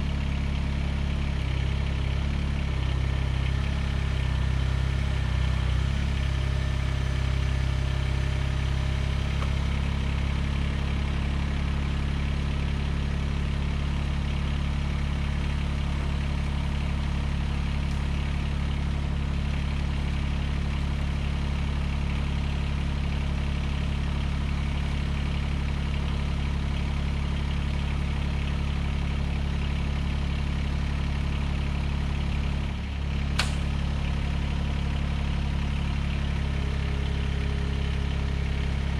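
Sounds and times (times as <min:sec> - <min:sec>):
tractor diesel engine running: 0:00.0 - 0:38.9
sharp click: 0:33.4 - 0:33.8.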